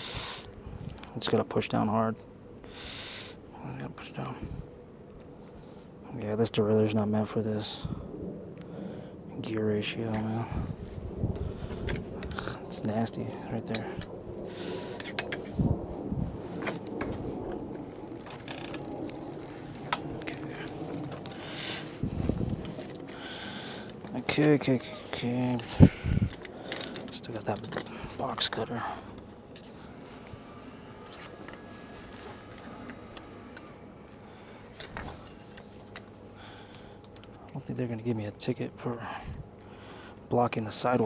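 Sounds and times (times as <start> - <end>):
steady low hum: 0.0 - 41.0
tools and parts clicking: 15.0 - 15.5, 26.3 - 28.0, 34.7 - 37.4
bicycle chain rattling: 17.6 - 24.0, 26.1 - 28.1.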